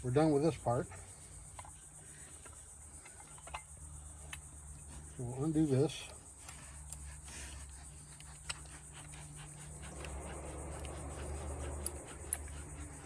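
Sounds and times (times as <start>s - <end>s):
insects chirring: 0.0s - 13.0s
low hum: 8.4s - 13.0s.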